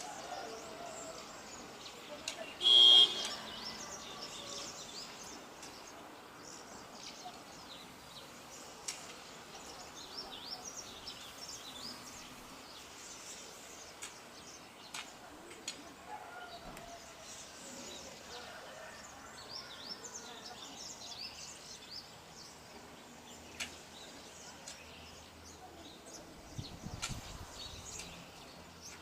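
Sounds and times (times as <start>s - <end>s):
outdoor background hiss: 0.0s - 29.0s
small birds chirping: 0.0s - 29.0s
faint sharp clicks: 14.8s - 15.8s, 23.5s - 23.8s.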